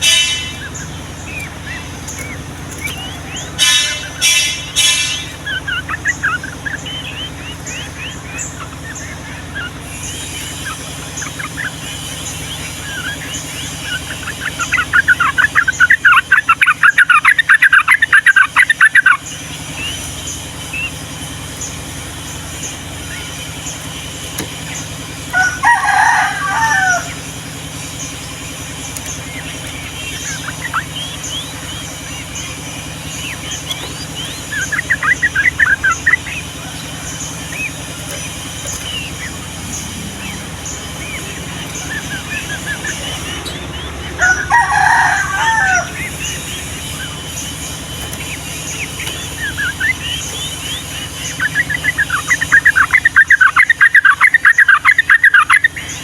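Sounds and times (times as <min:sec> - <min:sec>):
rapid chattering bird notes: 0:00.0 - 0:56.0
steady low hum: 0:00.0 - 0:56.0
bulbul bubbling song: 0:26.2 - 0:56.0.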